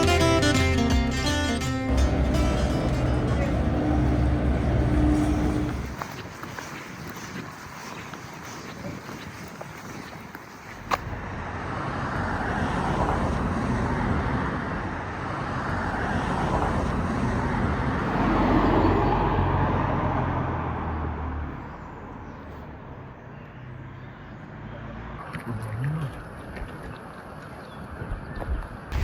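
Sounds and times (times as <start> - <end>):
low engine hum: 0.0 - 6.1
vehicles passing close by: 0.0 - 8.6, 10.8 - 25.4.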